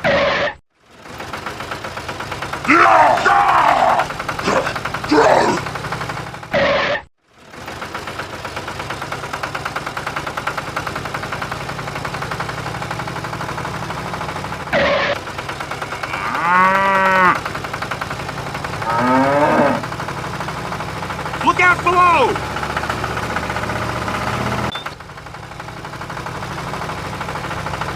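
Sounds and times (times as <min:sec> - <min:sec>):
rapidly pulsing engine: 0:00.0 - 0:27.9
moo-like call: 0:15.8 - 0:17.4, 0:18.8 - 0:19.9.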